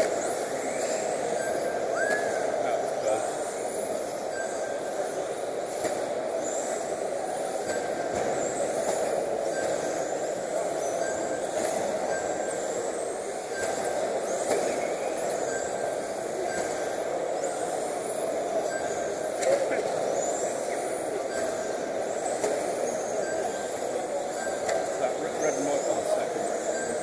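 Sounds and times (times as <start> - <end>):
high-pitched motor whines: 0.0 - 27.0.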